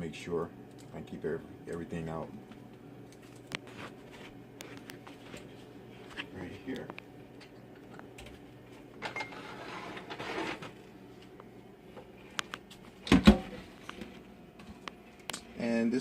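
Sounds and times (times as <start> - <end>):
rustling scrape: 9.3 - 10.8.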